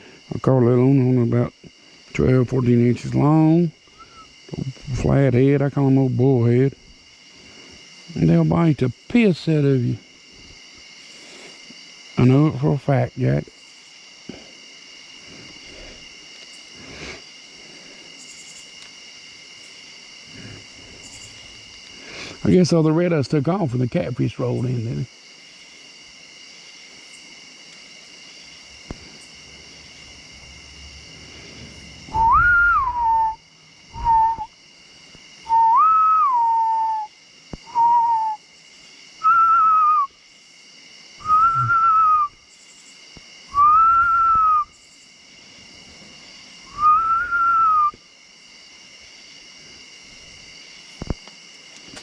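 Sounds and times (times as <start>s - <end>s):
crickets and insects chirping: 0.0s - 52.0s
person whistling a slow tune: 32.1s - 33.4s, 34.0s - 34.5s, 35.5s - 38.4s, 39.2s - 40.1s, 41.2s - 42.4s, 43.5s - 44.7s, 46.7s - 48.0s.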